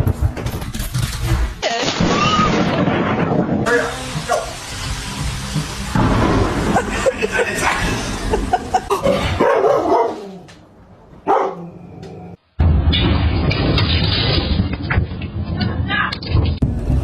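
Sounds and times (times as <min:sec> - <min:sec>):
dog barking and yipping: 0:09.0 - 0:10.4, 0:11.2 - 0:11.8.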